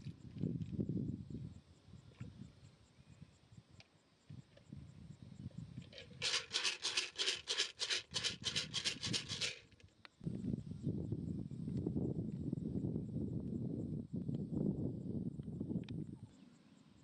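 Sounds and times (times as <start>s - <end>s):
rhythmic rubbing strokes: 6.0s - 9.7s.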